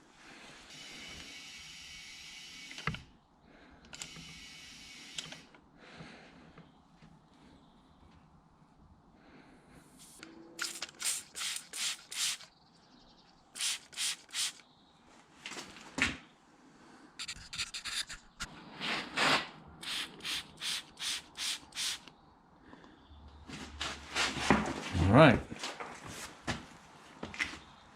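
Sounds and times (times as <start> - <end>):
short scraping rubbing strokes: 17.2 - 22.0.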